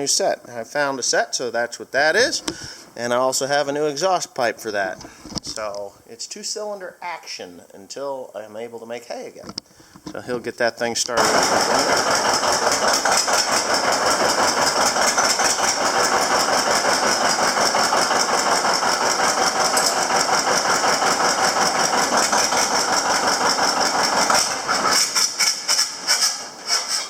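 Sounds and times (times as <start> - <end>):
tractor engine running: 11.2 - 27.0.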